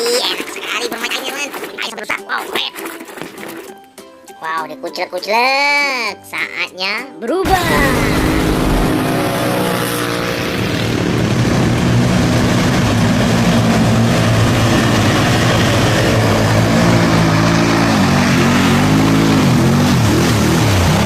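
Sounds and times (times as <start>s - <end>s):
engine running and revving: 7.5s - 21.0s.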